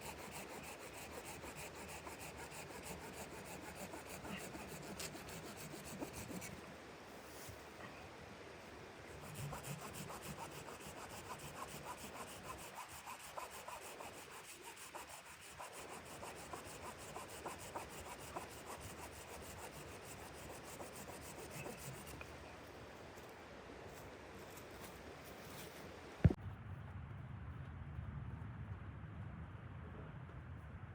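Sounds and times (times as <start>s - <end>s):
rhythmic scraping on wood: 0.0s - 6.6s, 9.1s - 22.3s.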